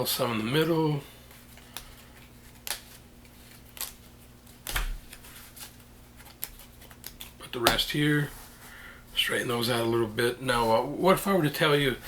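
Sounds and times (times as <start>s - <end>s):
low steady hum: 0.0s - 12.0s
playing cards slapping on table: 1.6s - 7.9s.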